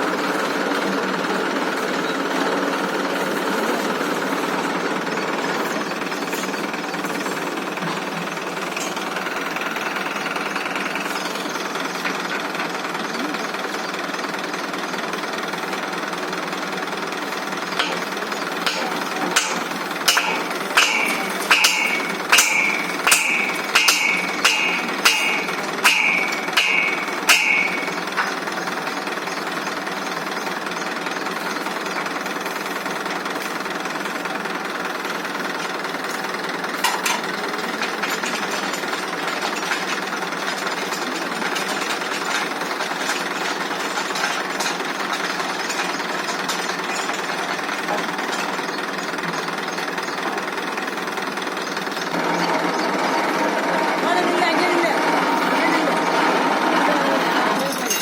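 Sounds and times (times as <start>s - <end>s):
tractor engine running: 0.0s - 58.0s
hammer blows on metal: 18.7s - 28.1s.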